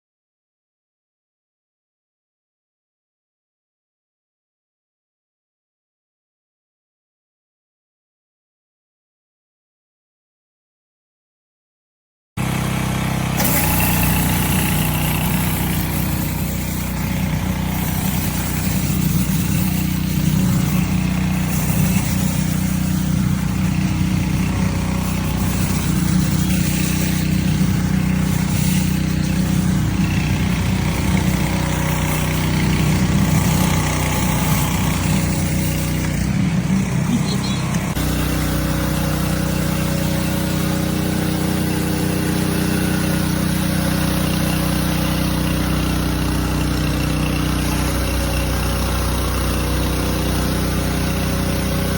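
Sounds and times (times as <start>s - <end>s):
pressure-washer engine running: 12.4s - 51.9s.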